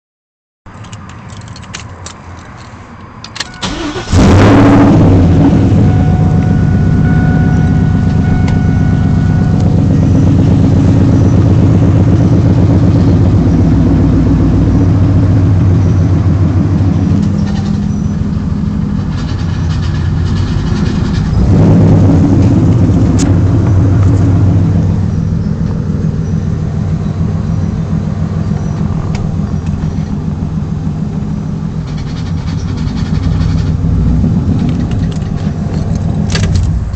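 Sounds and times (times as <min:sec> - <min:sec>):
car engine idling: 0:02.3 - 0:36.9.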